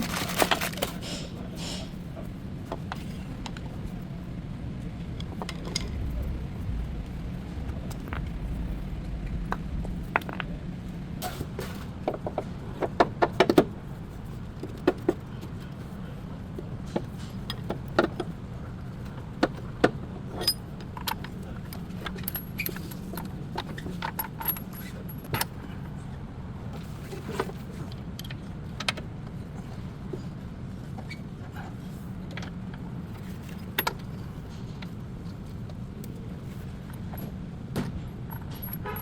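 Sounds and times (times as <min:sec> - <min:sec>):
steady low hum: 0:00.0 - 0:23.8.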